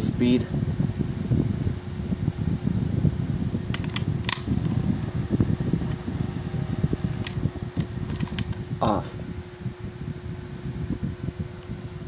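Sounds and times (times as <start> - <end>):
mini fan whirring: 0.0 - 12.0
sharp clicks: 3.8 - 4.8.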